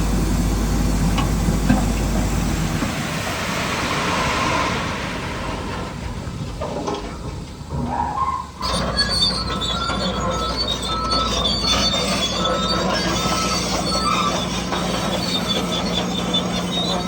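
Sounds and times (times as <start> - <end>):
high squeaks of tracks: 5.6 - 17.0.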